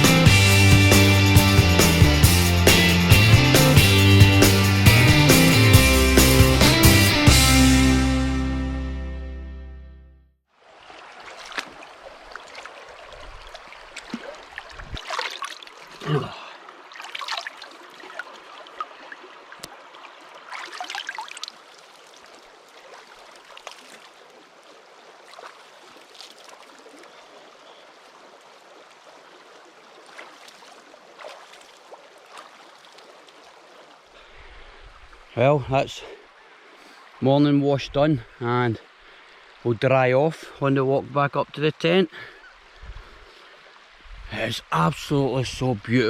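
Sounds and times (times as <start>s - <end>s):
river water flowing: 0.0s - 8.2s, 10.5s - 46.0s
splashing from washing: 10.7s - 34.3s.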